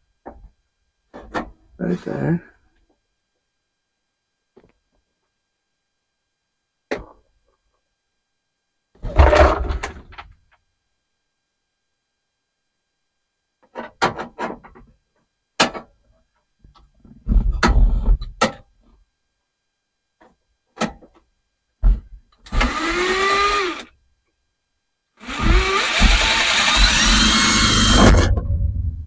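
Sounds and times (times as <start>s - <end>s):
power drill driving screw into metal: 22.5s - 23.9s, 25.2s - 28.3s.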